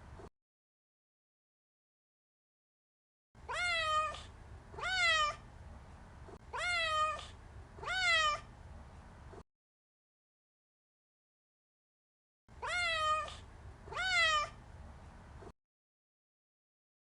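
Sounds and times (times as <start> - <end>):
cat meowing: 3.4 - 5.4, 6.5 - 8.5, 12.6 - 14.6.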